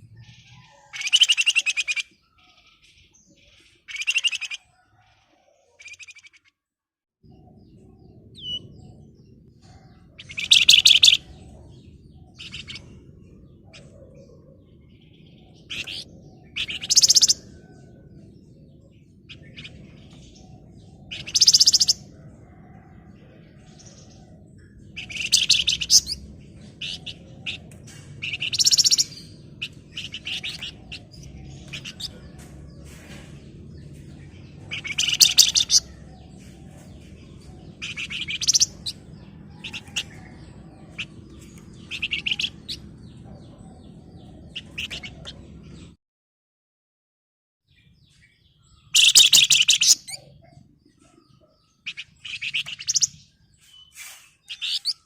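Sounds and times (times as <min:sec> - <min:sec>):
songbird trilling: 0:00.3 - 0:04.7, 0:09.9 - 0:13.0, 0:15.1 - 0:17.8, 0:19.2 - 0:22.6, 0:24.2 - 0:32.2, 0:34.2 - 0:45.4, 0:48.8 - 0:50.5, 0:51.8 - 0:53.2
bird chattering chirps: 0:00.3 - 0:04.8, 0:05.6 - 0:06.5, 0:09.7 - 0:22.2, 0:24.0 - 0:45.9, 0:48.7 - 0:55.0.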